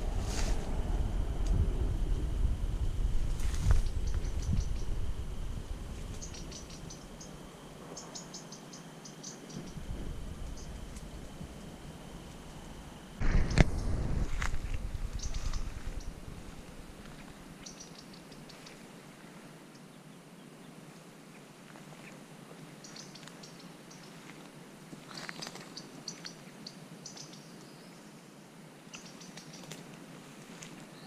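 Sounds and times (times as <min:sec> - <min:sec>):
microphone handling rumble: 0:00.0 - 0:07.1, 0:09.6 - 0:17.6
small birds chirping: 0:03.3 - 0:11.1, 0:14.6 - 0:18.9, 0:22.8 - 0:24.3, 0:25.1 - 0:28.1, 0:28.9 - 0:29.8.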